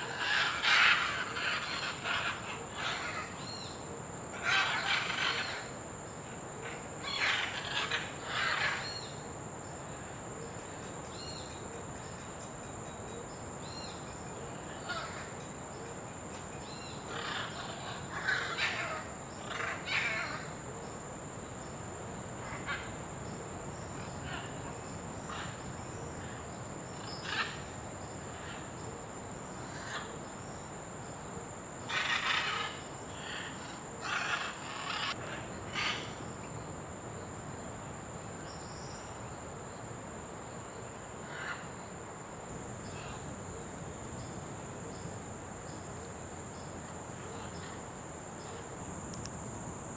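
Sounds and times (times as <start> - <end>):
high-pitched insect drone: 42.5 - 49.9.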